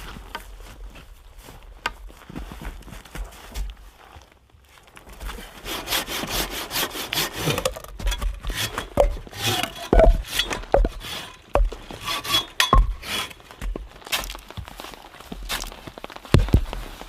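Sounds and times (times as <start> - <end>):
hand saw cutting wood: 5.5 - 13.4.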